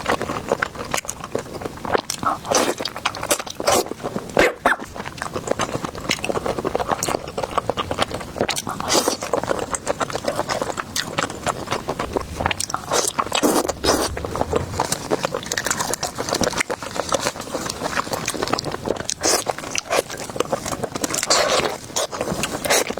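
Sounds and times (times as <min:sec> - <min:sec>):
chewing and biting food: 0:00.0 - 0:14.8.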